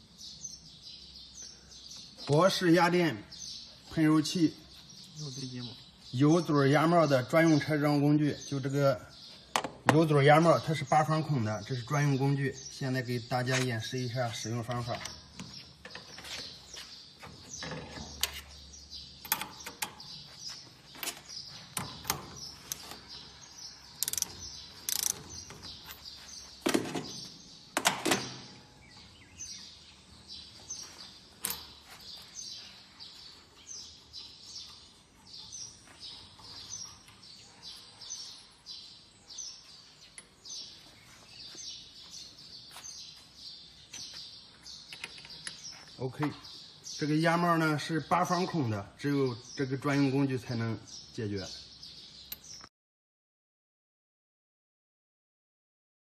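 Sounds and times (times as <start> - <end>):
birds chirping: 0.0 - 52.7.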